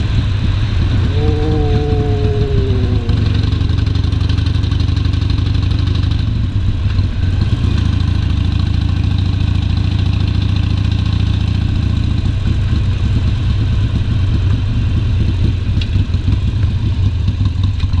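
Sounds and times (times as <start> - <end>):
motorcycle engine rumbling: 0.0 - 7.6.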